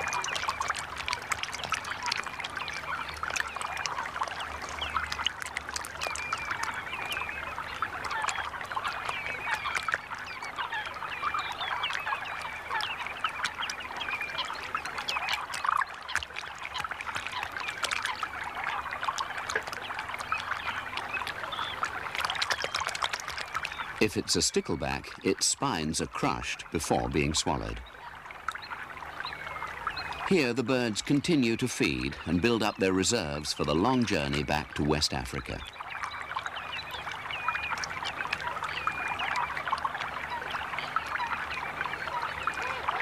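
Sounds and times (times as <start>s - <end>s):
chorus of bird calls: 0.0s - 43.0s
shallow water splashing: 0.0s - 43.0s.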